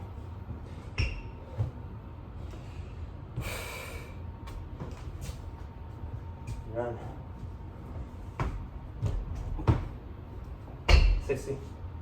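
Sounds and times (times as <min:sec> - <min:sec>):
person breathing hard: 0:02.5 - 0:04.3
forceful exhale: 0:03.4 - 0:04.2
low thuds on floor: 0:08.3 - 0:10.0.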